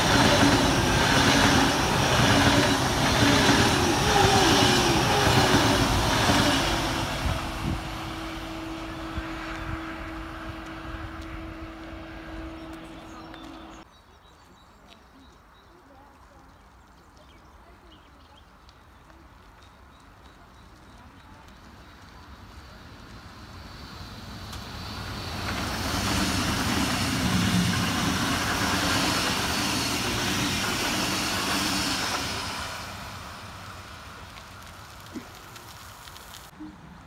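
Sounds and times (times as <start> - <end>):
electric train passing: 0.0 - 13.8, 21.7 - 35.1.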